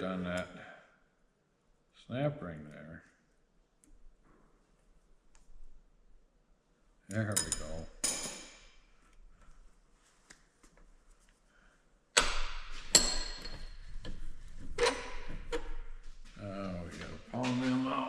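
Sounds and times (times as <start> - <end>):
metal tools clinking and knocking: 7.2 - 8.8, 12.2 - 14.2.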